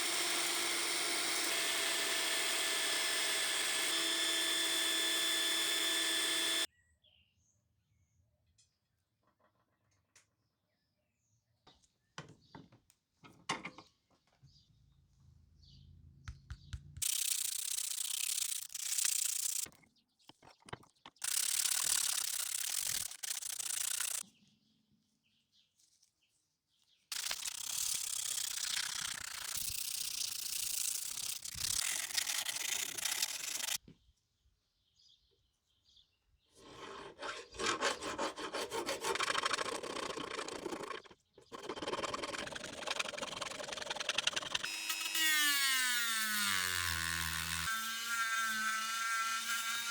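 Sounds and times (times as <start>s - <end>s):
abrasive sanding or grinding: 21.2s - 24.2s.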